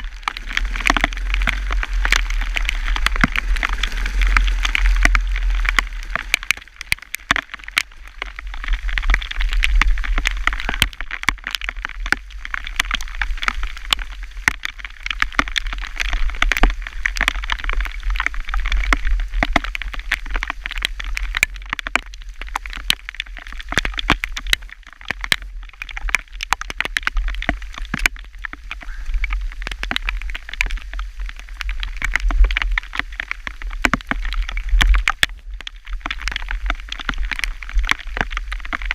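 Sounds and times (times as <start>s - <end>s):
low steady rumble: 0.0s - 15.0s
hailstones ticking: 0.0s - 38.9s.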